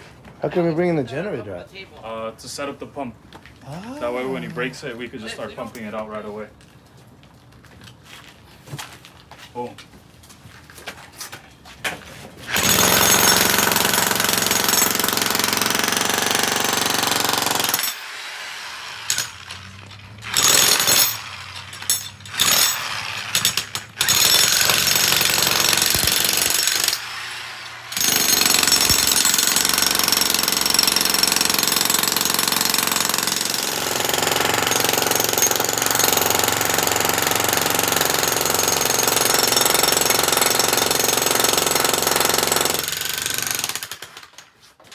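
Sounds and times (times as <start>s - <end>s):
jackhammer breaking concrete: 12.5s - 44.5s.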